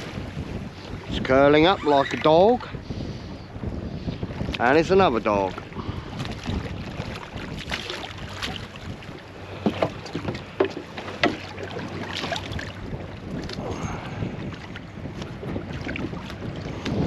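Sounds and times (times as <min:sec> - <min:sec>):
water lapping against boat hull: 0:00.0 - 0:17.0
wind on microphone: 0:00.0 - 0:17.0
sharp knocks and splashes: 0:05.5 - 0:13.7, 0:14.5 - 0:17.0.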